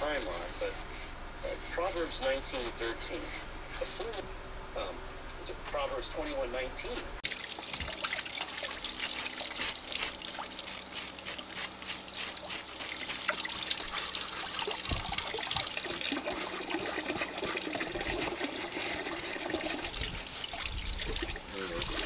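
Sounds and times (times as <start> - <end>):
water trickling and splashing: 7.2 - 22.0.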